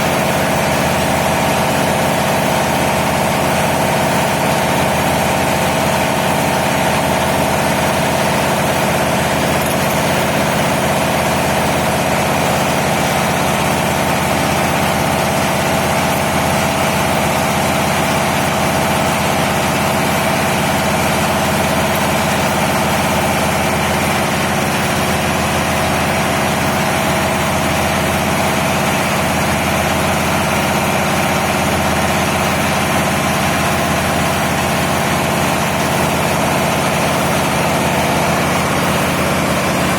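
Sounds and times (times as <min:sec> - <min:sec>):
diesel machinery droning: 0:00.0 - 0:39.9.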